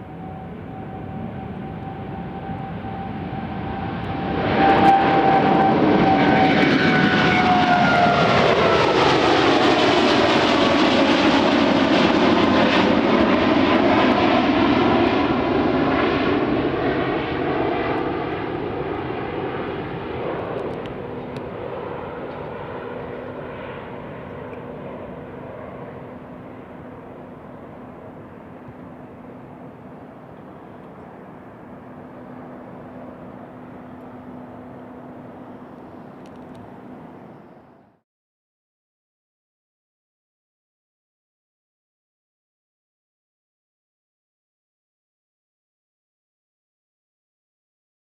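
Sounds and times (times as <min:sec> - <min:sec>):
jet aircraft passing: 0:00.0 - 0:38.0.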